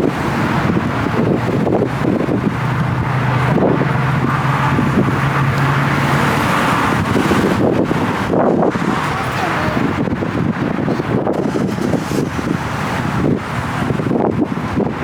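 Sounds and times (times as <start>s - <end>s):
road noise: 0.0s - 15.0s
vehicle engine humming: 0.0s - 15.0s.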